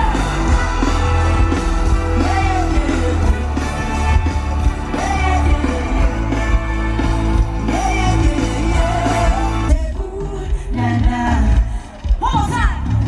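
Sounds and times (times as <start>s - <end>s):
person singing: 0.0s - 12.1s
live pop music: 0.0s - 13.0s.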